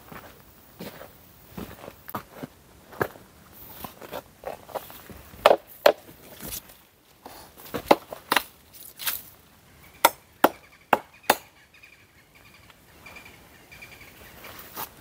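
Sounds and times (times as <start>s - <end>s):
chopping dry wood: 5.4s - 6.1s, 7.7s - 9.2s, 10.0s - 11.5s.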